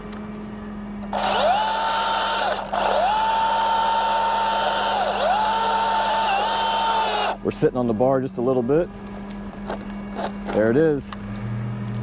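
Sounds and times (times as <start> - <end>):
chainsaw whining: 1.1 - 7.4.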